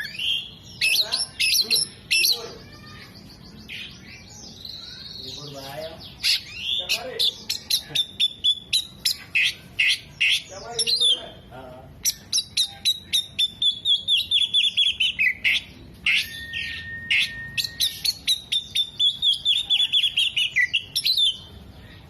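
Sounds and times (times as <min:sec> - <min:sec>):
bird singing sharp notes: 0:12.0 - 0:21.5
bird long steady whistle: 0:16.4 - 0:18.2.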